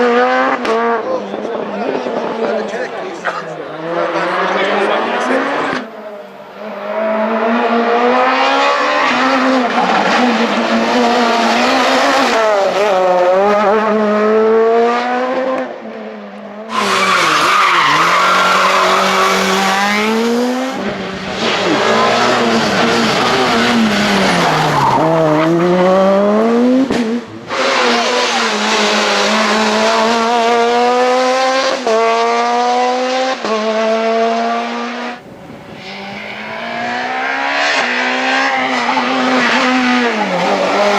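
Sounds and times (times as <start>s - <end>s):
rally car engines revving hard: 0.0s - 40.9s.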